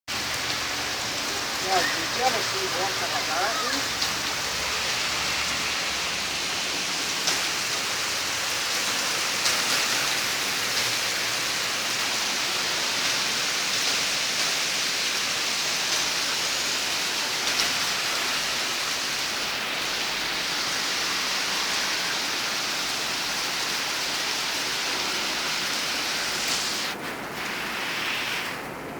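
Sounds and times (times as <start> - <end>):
raindrops tapping: 0.1 - 5.2, 6.7 - 18.8
heavy rain hissing: 0.1 - 28.9.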